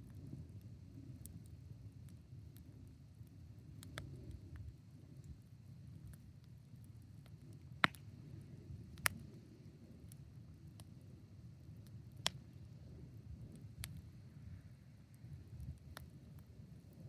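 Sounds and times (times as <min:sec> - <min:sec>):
fire crackling ticks: 0:00.0 - 0:09.4, 0:10.0 - 0:11.0, 0:11.7 - 0:14.1, 0:15.0 - 0:17.0
low fire rumble: 0:00.0 - 0:17.0.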